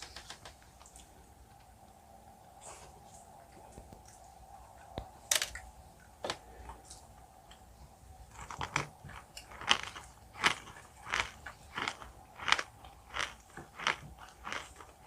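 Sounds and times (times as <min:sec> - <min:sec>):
crunchy chewing of candy: 0:08.3 - 0:15.0.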